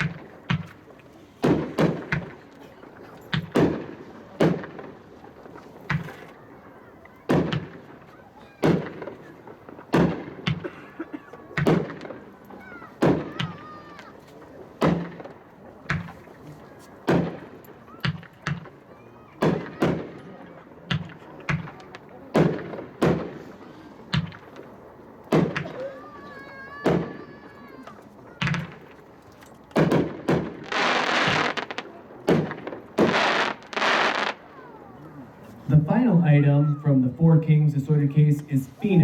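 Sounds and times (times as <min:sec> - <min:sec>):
firework bangs with thuds: 0:00.0 - 0:02.6, 0:03.2 - 0:06.3, 0:07.3 - 0:10.8, 0:11.5 - 0:13.8, 0:14.8 - 0:16.4, 0:17.0 - 0:18.8, 0:19.4 - 0:23.5, 0:24.1 - 0:24.7, 0:25.3 - 0:25.8, 0:26.8 - 0:27.2, 0:28.4 - 0:29.0, 0:29.7 - 0:34.4.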